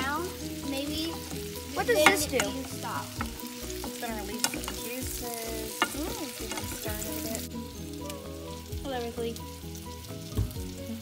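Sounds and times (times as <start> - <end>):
fruit sizzling in butter: 0.0 - 11.0
wooden spoon stirring: 0.6 - 7.6.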